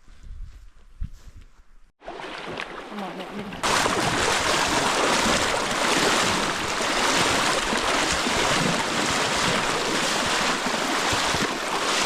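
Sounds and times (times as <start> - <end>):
river water rushing: 2.0 - 12.0.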